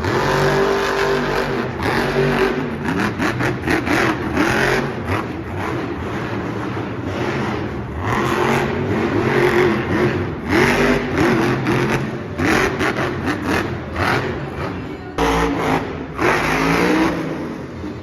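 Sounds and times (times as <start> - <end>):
monster truck engine revving: 0.0 - 18.0.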